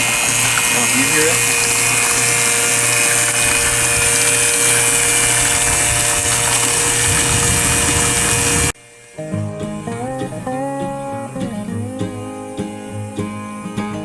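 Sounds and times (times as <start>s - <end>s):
electric water pump whirring: 0.0s - 14.0s.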